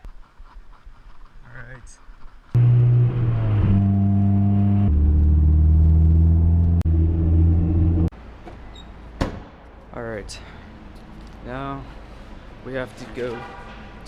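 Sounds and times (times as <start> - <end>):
car engine accelerating: 2.6 - 8.1.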